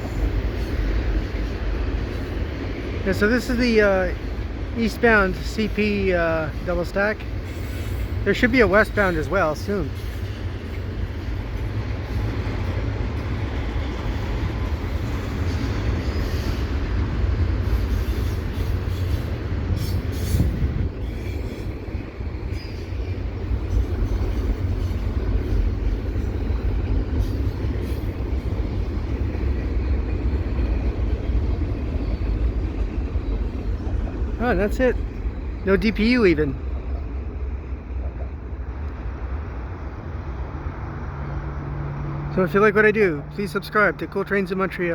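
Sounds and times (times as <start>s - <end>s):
freight train rumbling past: 0.0s - 44.9s.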